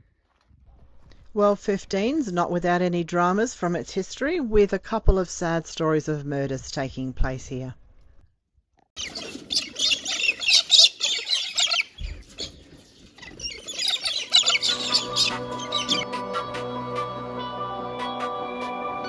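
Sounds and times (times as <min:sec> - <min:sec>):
small birds chattering and chirping: 0:09.0 - 0:16.0.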